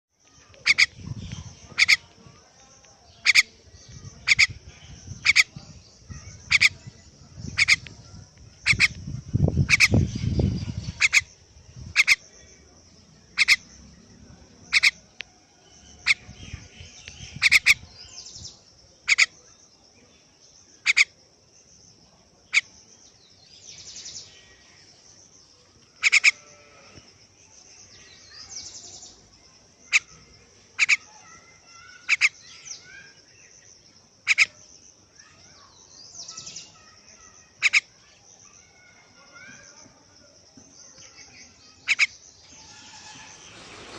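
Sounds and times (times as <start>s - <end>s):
bird sharp chirps: 41.0s - 43.9s.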